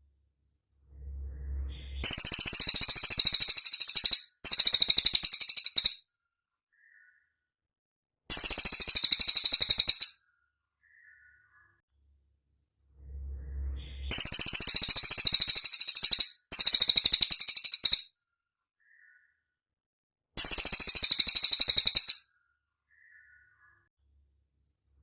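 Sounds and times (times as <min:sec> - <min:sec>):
faint low rumble: 0:00.0 - 0:02.7, 0:11.9 - 0:14.9
bird high-pitched trills: 0:01.0 - 0:06.0, 0:08.3 - 0:10.2, 0:13.0 - 0:18.1, 0:20.4 - 0:22.3.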